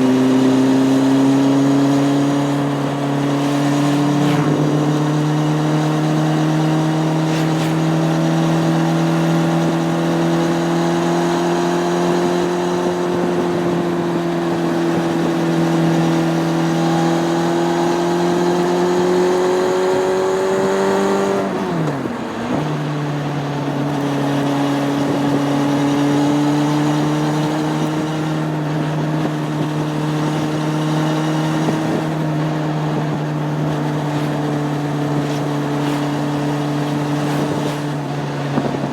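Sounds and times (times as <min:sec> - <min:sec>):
motorcycle engine running: 0:00.0 - 0:38.9
gear change: 0:00.8 - 0:11.5, 0:21.2 - 0:38.9.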